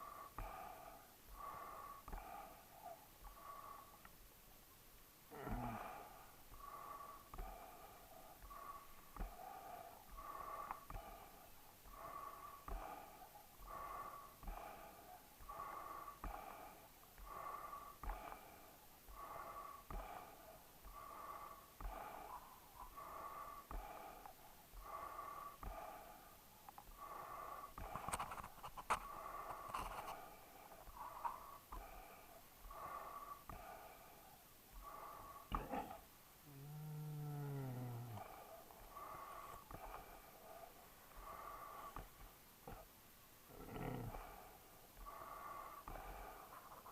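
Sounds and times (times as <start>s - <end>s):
dog breathing noisily: 5.7s - 36.1s, 44.1s - 46.9s.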